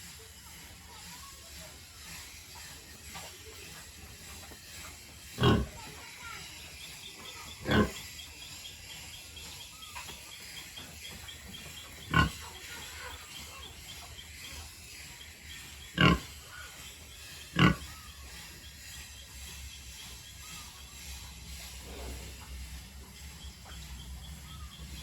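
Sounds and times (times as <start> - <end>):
pigs calling loudly: 2.3 - 19.0.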